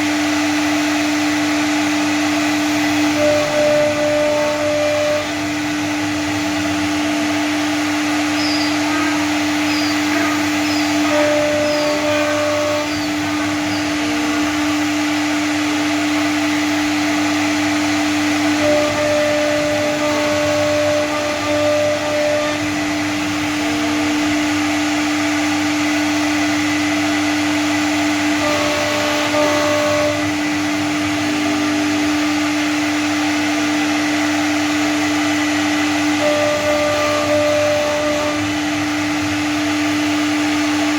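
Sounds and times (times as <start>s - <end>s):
cnc router whine: 0.0s - 40.9s
short high tones: 8.3s - 14.0s.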